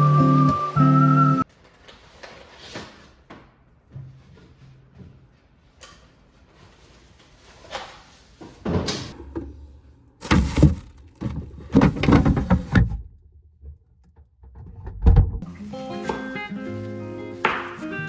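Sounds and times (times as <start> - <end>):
knocks and scrapes in a room: 1.4 - 15.5
heavy thud: 14.8 - 15.4.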